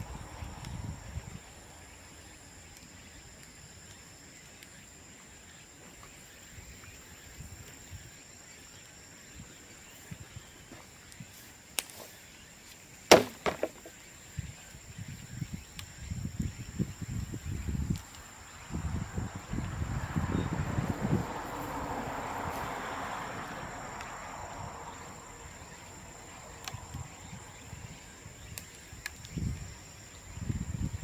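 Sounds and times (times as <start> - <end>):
bamboo popping in fire: 10.6 - 14.2, 28.3 - 30.0
bonfire crackling: 20.9 - 30.2.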